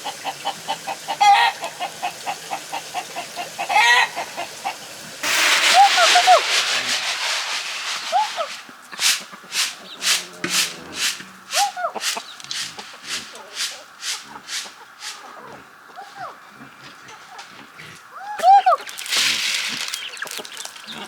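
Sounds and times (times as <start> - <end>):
chickens clucking: 0.0 - 21.0
loud rushing noise: 5.2 - 9.7
scraping strokes: 5.2 - 15.4, 18.9 - 21.0.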